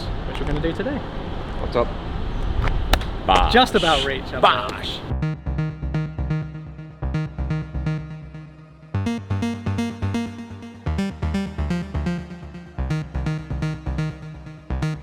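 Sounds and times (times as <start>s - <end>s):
synthesizer music with pulsing beat: 5.2s - 15.0s.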